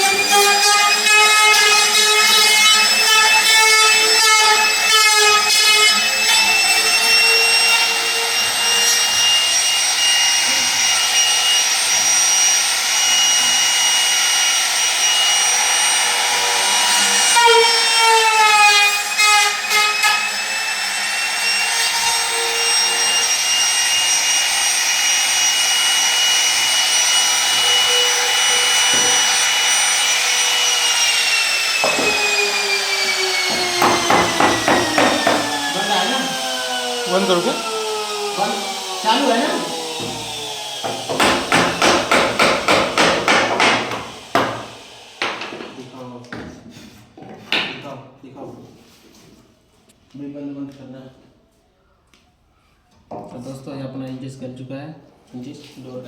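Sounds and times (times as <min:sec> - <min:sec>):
electric motor whining: 0:21.0 - 0:45.2.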